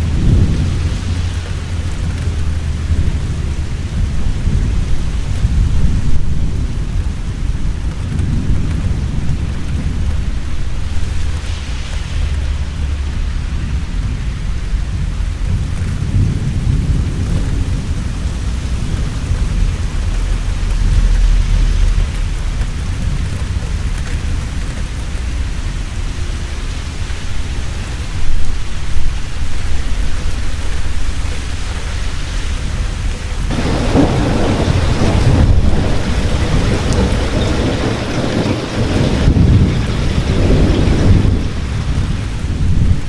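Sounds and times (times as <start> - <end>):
heavy rain: 0.0 - 43.0
rolling thunder: 0.0 - 43.0
sharp thunder crack: 33.4 - 43.0.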